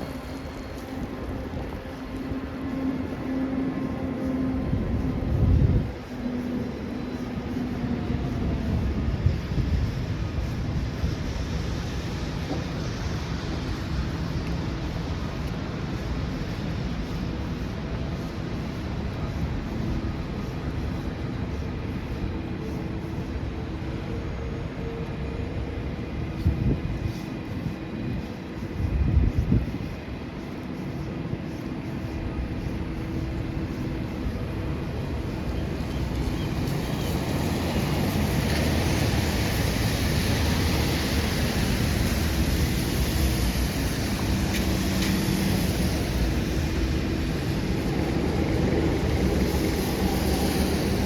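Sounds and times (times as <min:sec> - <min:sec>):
city traffic rumble: 0:00.0 - 0:51.0.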